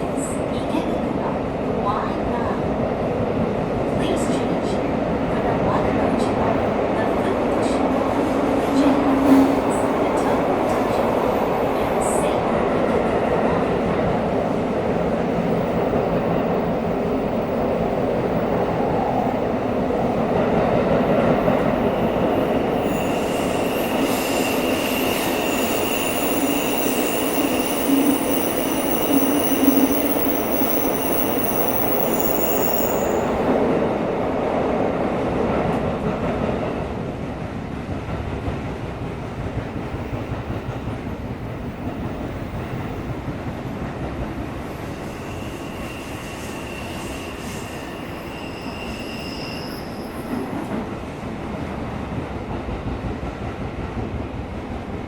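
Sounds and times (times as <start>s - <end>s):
subway train wheels rumbling: 0.0s - 55.0s
high-pitched wheel squeal: 22.8s - 33.4s, 45.1s - 50.5s.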